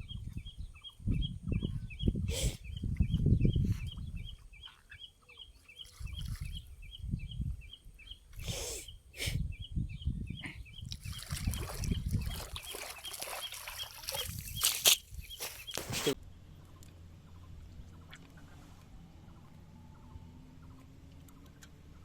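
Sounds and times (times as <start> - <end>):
rustling: 14.2 - 16.2.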